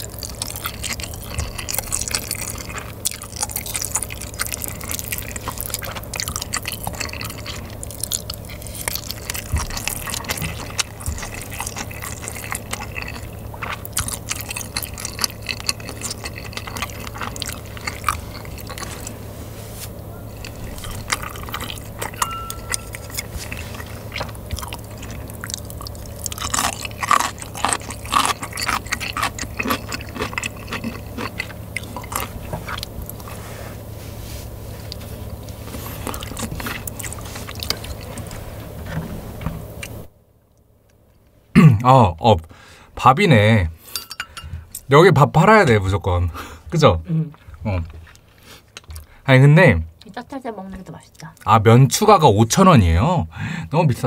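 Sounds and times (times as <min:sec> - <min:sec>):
wet sticky chewing: 0:00.0 - 0:19.3, 0:19.9 - 0:33.5, 0:34.6 - 0:41.0, 0:46.7 - 0:49.2.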